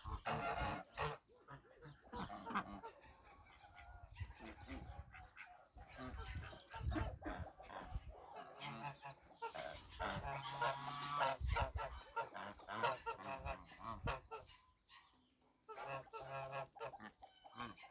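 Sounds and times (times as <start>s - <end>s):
geese honking: 0.0s - 3.8s, 7.0s - 14.5s, 15.7s - 17.9s.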